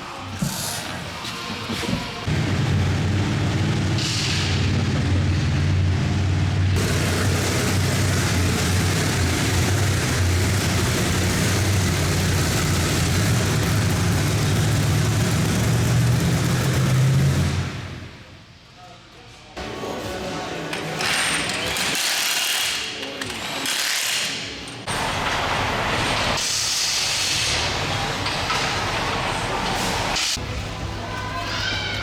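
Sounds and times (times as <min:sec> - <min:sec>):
monster truck engine running: 0:00.4 - 0:18.2.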